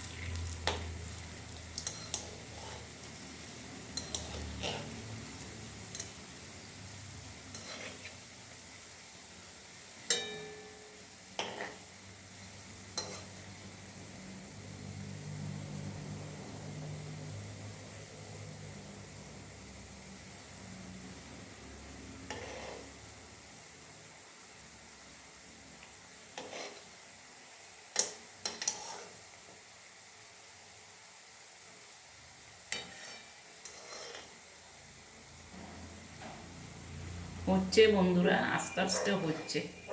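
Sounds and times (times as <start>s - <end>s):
dumplings sizzling in oil: 0.0s - 39.9s
ringing clang: 10.1s - 11.1s
utensil clinking against pan: 10.1s - 11.7s.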